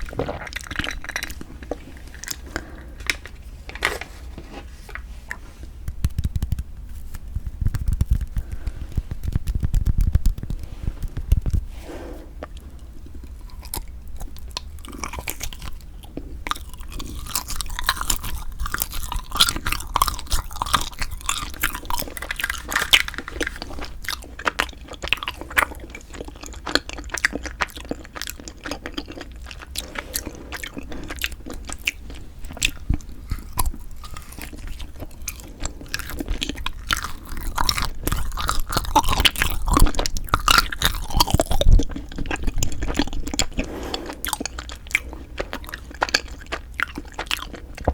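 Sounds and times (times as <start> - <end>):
crunchy chewing: 0.0 - 4.0, 5.3 - 47.9.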